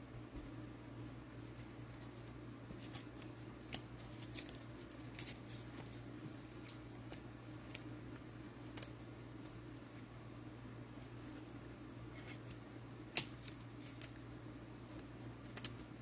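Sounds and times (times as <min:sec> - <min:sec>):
card packs clicking and crinkling: 0:02.2 - 0:05.4.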